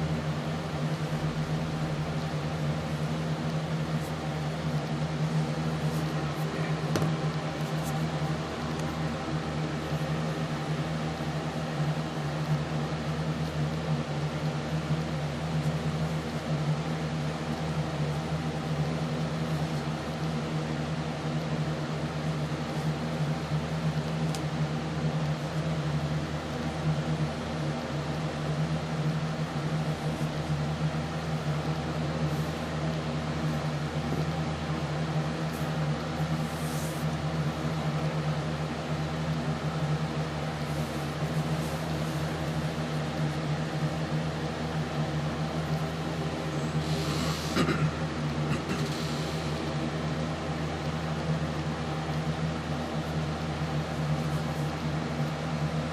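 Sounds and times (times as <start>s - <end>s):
low mechanical hum: 0.0s - 55.9s
noisy hiss: 28.3s - 38.4s, 39.6s - 50.3s.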